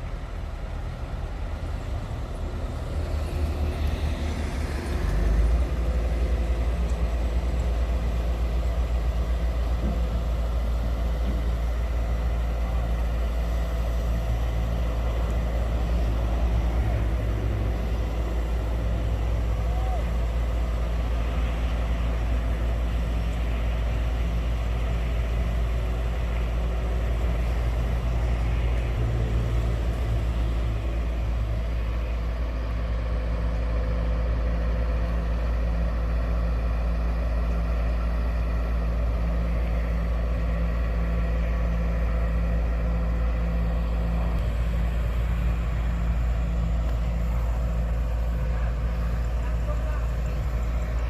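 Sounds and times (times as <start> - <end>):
large engine droning: 0.0 - 51.0.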